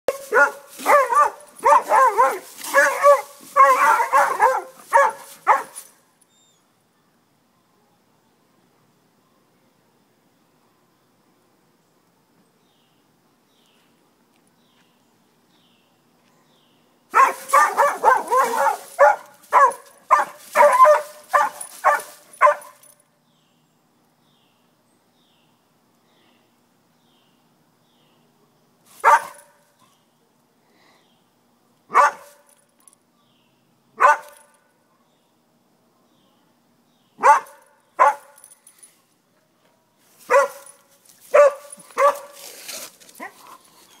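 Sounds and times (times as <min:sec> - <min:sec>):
dog barking: 0:00.1 - 0:05.8, 0:17.2 - 0:22.8, 0:29.0 - 0:29.5, 0:31.9 - 0:32.4, 0:34.0 - 0:35.1, 0:37.2 - 0:38.4, 0:40.3 - 0:42.4.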